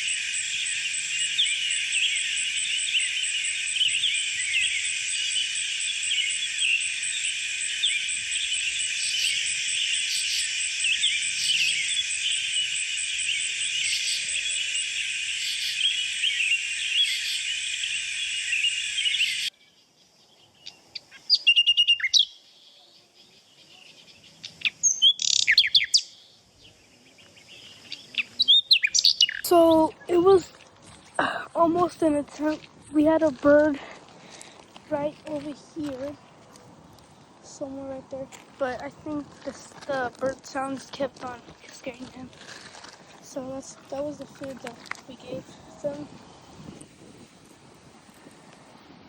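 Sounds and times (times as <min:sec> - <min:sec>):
short bird chirping calls: 0:00.0 - 0:30.2
chorus of bird chirps: 0:00.0 - 0:33.2.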